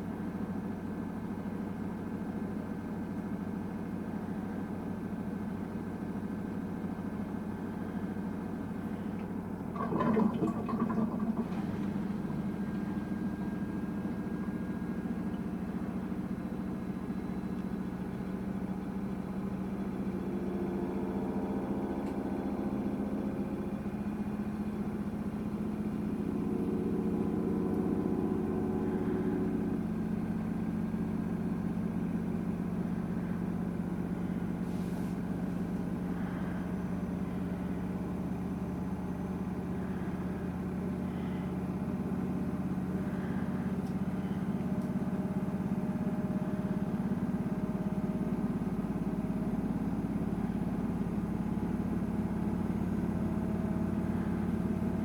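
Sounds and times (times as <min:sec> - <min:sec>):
washing machine drum spinning: 0:09.1 - 0:14.1.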